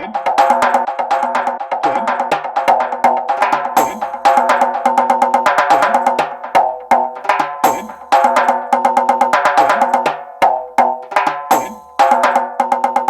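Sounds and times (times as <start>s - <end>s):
drum machine groove: 0.0s - 13.0s.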